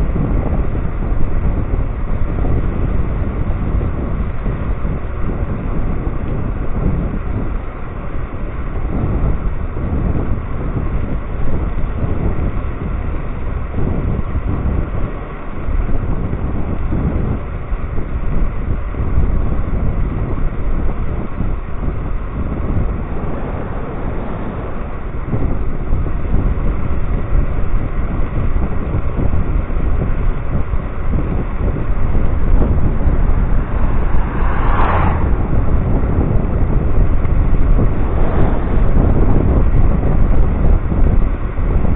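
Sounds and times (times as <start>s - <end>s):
wind buffeting microphone: 0.0s - 41.9s
low rumble: 21.0s - 27.4s, 29.9s - 41.9s.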